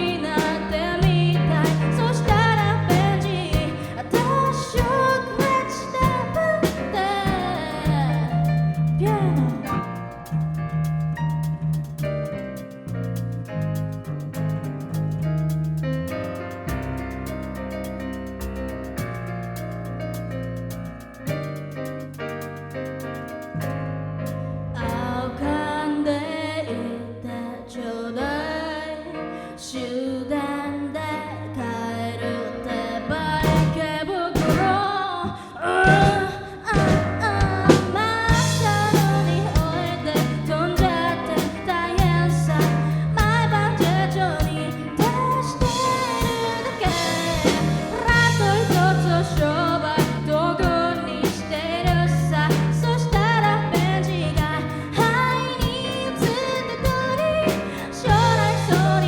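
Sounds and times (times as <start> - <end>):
live pop-rock band playing: 0.0 - 10.4, 35.8 - 59.0.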